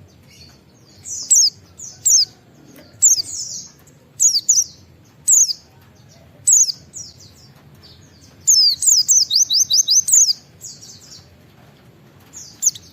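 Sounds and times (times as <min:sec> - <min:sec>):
bird singing whistled notes: 0:03.0 - 0:05.6, 0:06.5 - 0:07.4, 0:08.4 - 0:11.3, 0:12.4 - 0:12.9.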